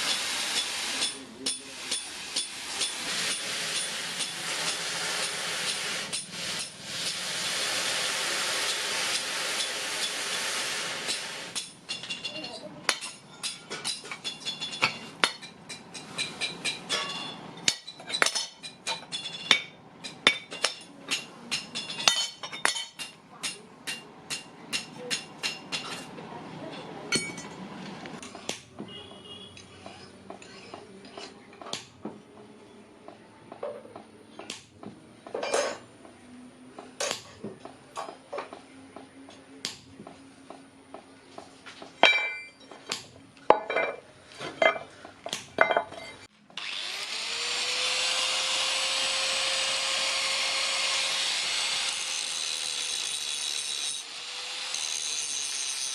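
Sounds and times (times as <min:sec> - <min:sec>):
hammer striking steel: 0:00.1 - 0:07.2, 0:11.0 - 0:26.1.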